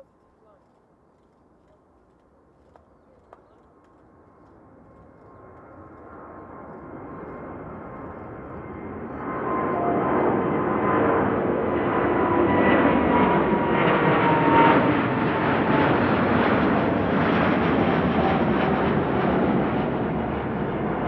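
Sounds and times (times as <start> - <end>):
jet engines roaring: 4.1 - 21.0.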